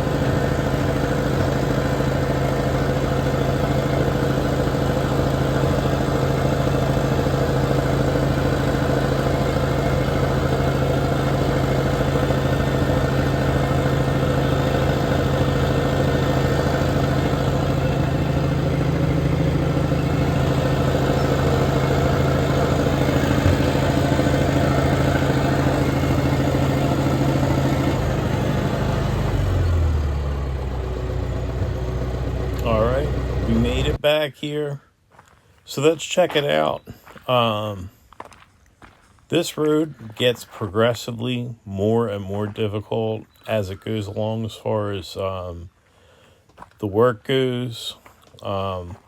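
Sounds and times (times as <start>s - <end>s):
heavy machine engine running: 0.0s - 34.0s.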